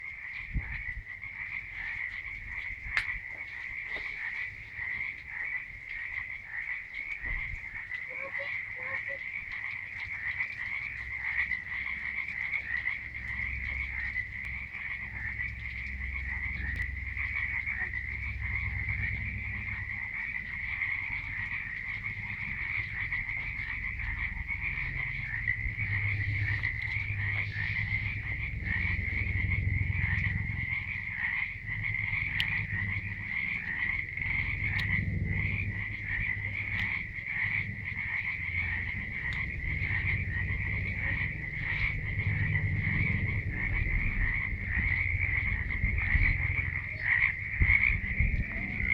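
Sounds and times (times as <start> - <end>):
frog chorus: 0.0 - 48.9
low rumble: 0.0 - 48.9.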